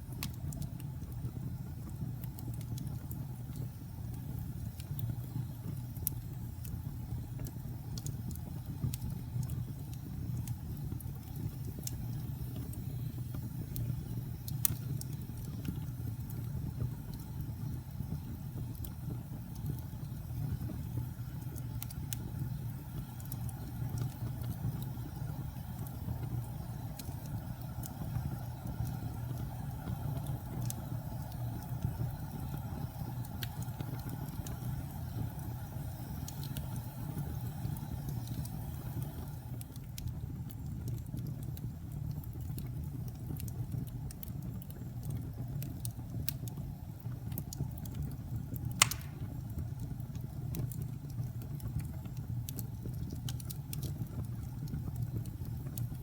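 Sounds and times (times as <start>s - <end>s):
fireplace fire burning: 0.0s - 56.0s
sharp pop from fire: 48.8s - 49.6s.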